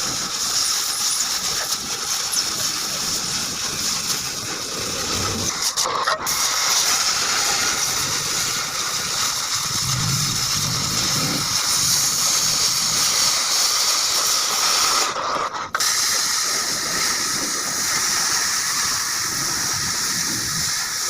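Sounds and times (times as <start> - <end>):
gas cutting torch hissing: 0.0 - 21.0.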